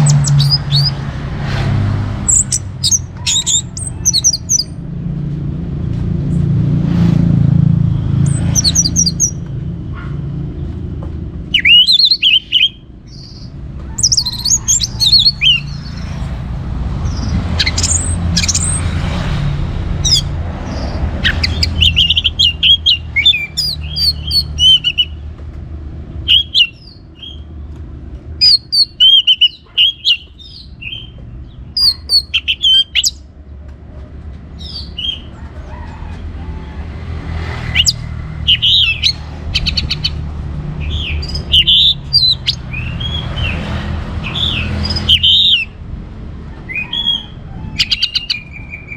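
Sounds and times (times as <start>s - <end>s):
bird singing high twisting notes: 0.0s - 5.1s, 6.2s - 9.7s, 11.4s - 25.2s, 26.2s - 27.5s, 28.4s - 33.2s, 37.6s - 45.8s, 46.7s - 48.9s
steady low rumble: 0.0s - 29.0s.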